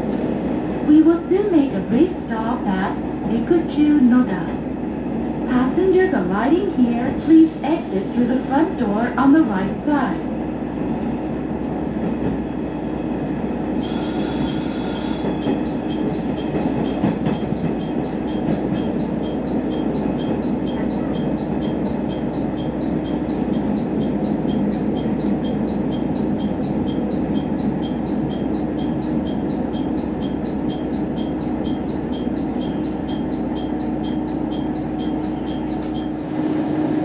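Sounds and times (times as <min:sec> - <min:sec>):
railcar rumble and hum: 0:00.0 - 0:37.0
high squeal: 0:13.8 - 0:17.0
high-pitched ticking: 0:13.9 - 0:36.4.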